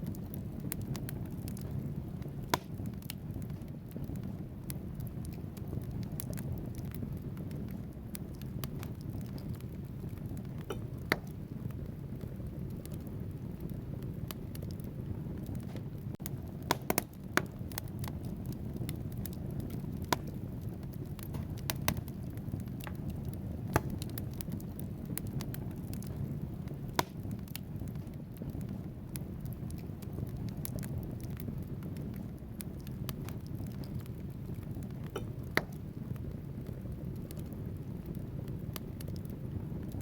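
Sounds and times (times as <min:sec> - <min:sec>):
fire burning with low rush: 0:00.0 - 0:40.0
logs crackling and popping: 0:00.0 - 0:40.0.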